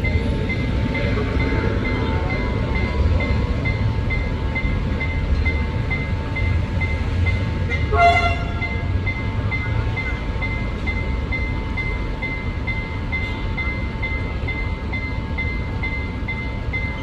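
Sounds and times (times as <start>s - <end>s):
level crossing warning beeps: 0.0s - 17.0s
train engine rumble: 0.0s - 17.0s
train horn blast: 7.7s - 8.9s.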